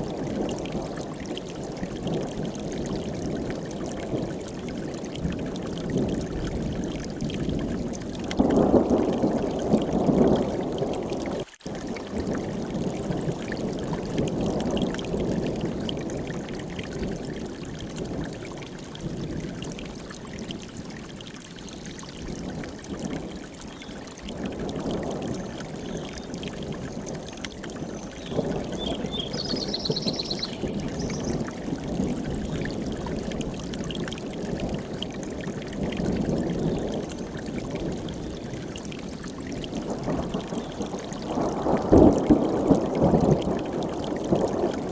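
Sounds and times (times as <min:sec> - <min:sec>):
stream rushing over rocks: 0:00.0 - 0:44.9
small bird trill: 0:28.2 - 0:31.4.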